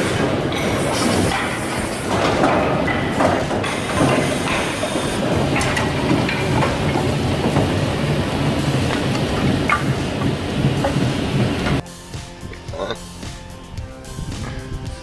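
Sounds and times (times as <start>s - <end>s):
heavy machinery rumble: 0.0s - 11.8s
wood pieces clattering: 0.0s - 11.8s.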